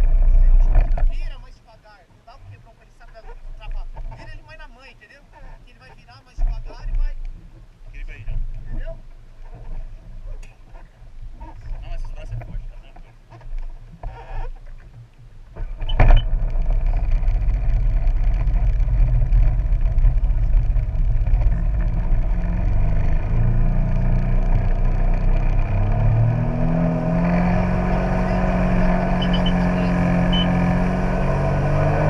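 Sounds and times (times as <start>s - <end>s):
jet ski engine running: 15.5s - 32.0s.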